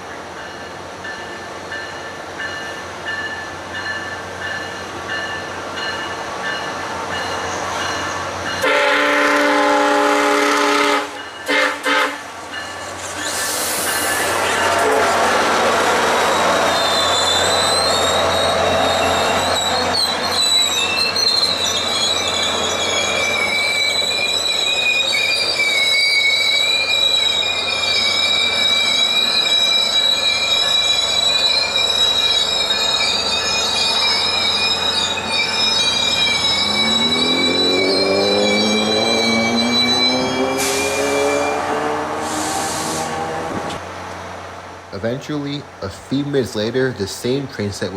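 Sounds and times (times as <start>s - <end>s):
moving train rumble: 0.0s - 47.9s
train wheels squealing on rails: 0.4s - 43.8s
diesel engine note rising: 36.6s - 43.7s.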